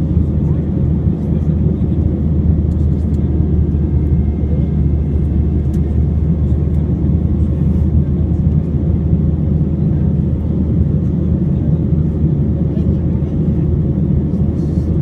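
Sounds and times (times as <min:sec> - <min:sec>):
jet engines rumbling in cabin: 0:00.0 - 0:15.0
faint steady tones: 0:03.3 - 0:07.4.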